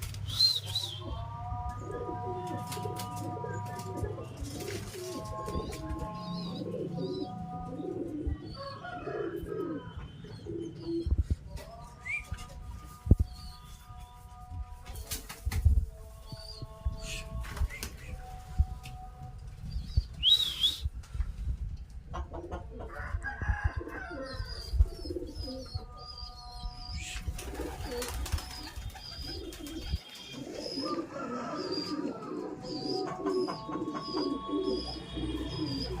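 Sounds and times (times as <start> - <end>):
birds cooing: 0.3 - 12.3, 19.7 - 20.9, 22.1 - 36.0
birds chirping: 19.6 - 21.0, 24.2 - 36.0.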